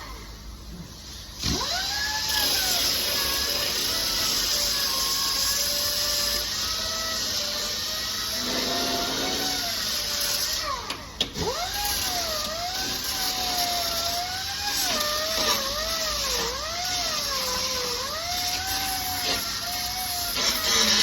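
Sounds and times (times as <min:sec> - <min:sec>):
angle grinder grinding metal: 0:11.7 - 0:21.0.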